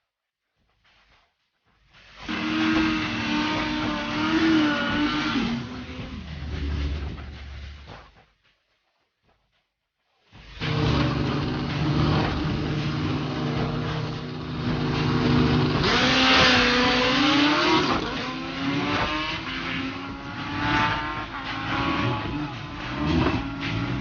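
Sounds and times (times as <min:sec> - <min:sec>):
motorcycle engines revving: 0:02.2 - 0:07.9, 0:10.4 - 0:24.0.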